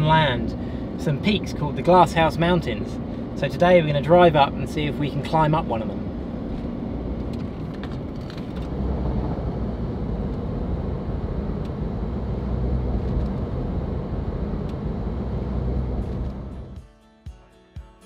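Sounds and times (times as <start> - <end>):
car engine: 0.0 - 16.8
road rumble: 0.0 - 16.8.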